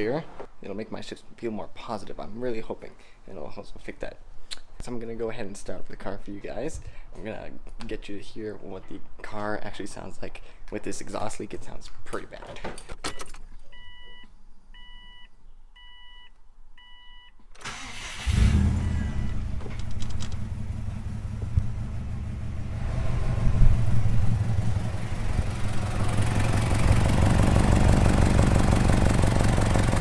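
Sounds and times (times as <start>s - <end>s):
car engine cranking and starting: 17.6s - 30.0s
car engine revving: 17.7s - 30.0s.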